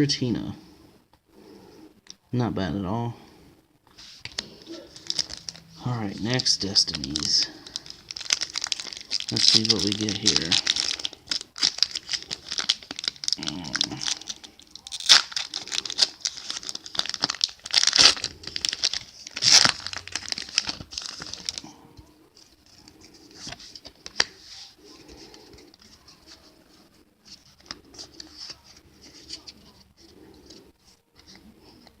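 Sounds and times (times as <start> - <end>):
cards rustling: 3.9 - 32.0
foil pack crackling: 4.4 - 21.7.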